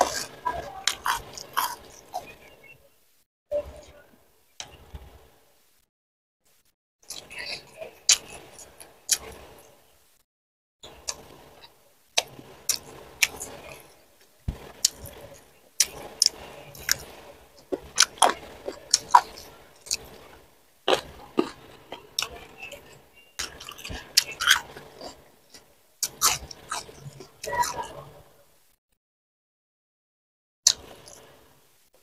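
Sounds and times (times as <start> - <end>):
chewing with crunches: 0.0 - 2.5, 7.0 - 9.8, 10.9 - 28.1
wet mouth clicks: 8.1 - 9.3.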